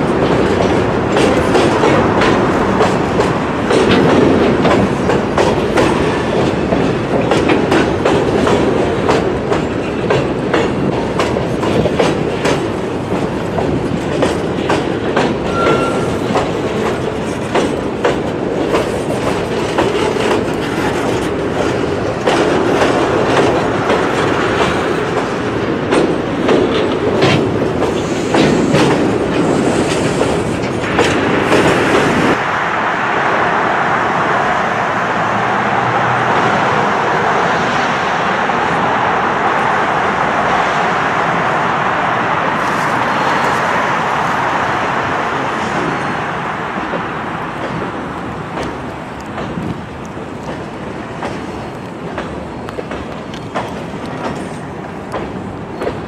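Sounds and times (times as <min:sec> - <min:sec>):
wheels clicking over rail joints: 0:00.0 - 0:32.4, 0:46.8 - 0:56.0
freight train rolling past: 0:00.0 - 0:56.0
steady rushing noise: 0:16.3 - 0:55.7.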